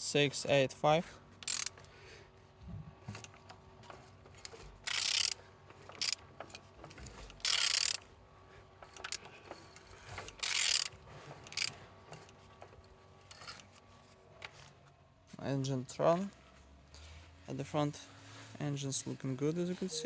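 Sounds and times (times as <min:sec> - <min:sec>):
ratchet clicks: 0:01.4 - 0:01.9, 0:03.1 - 0:08.1, 0:08.8 - 0:13.8
ratchet wrench rasping: 0:01.4 - 0:01.9, 0:03.9 - 0:08.1, 0:08.8 - 0:12.3, 0:13.2 - 0:13.8.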